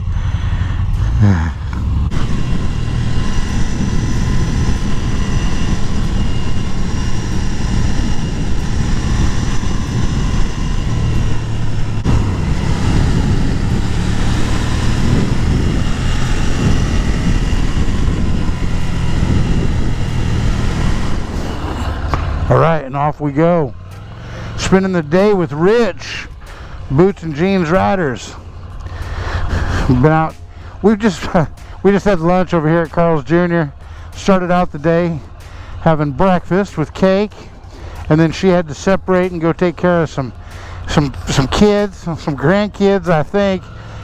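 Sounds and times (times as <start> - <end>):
wind noise on microphone: 0.0 - 22.5
motorcycle engine running: 0.0 - 44.0.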